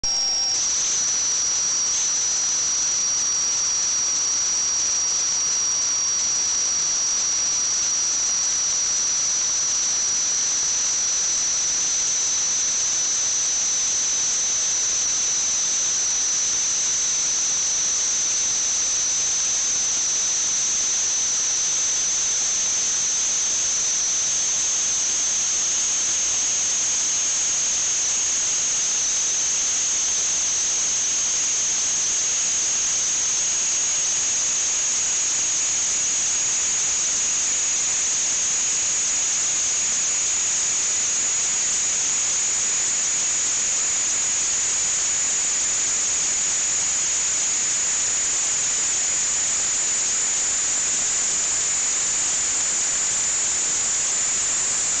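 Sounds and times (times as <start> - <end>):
high-pitched whine: 0.0 - 4.0.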